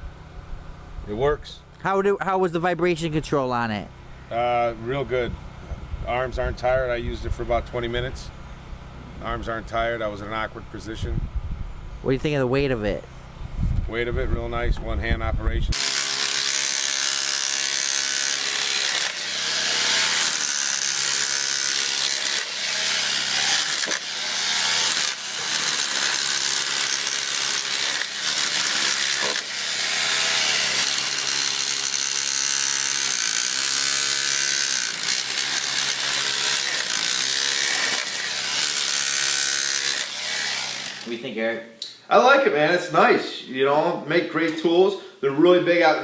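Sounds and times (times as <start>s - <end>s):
rotary hammer running under load: 15.7s - 41.1s.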